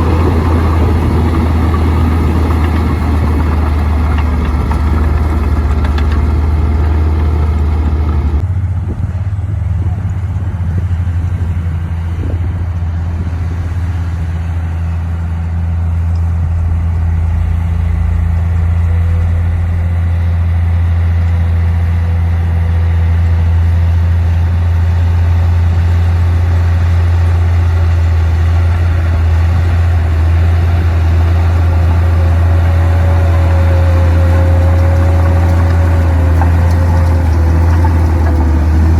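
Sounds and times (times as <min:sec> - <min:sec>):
bulldozer diesel engine droning: 0:00.0 - 0:38.9
faint whine: 0:14.2 - 0:22.2.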